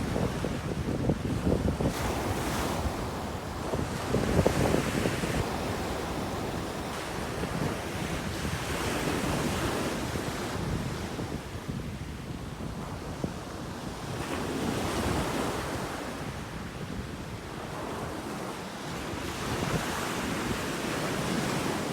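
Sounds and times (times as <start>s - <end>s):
sea surf washing: 0.0s - 10.7s
wind buffeting microphone: 0.0s - 21.9s.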